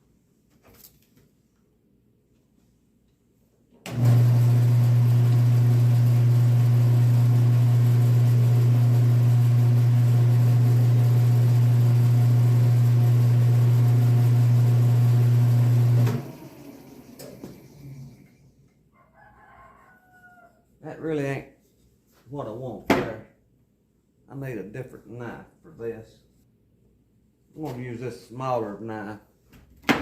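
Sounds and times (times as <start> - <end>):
wood lathe motor humming: 3.9 - 18.3.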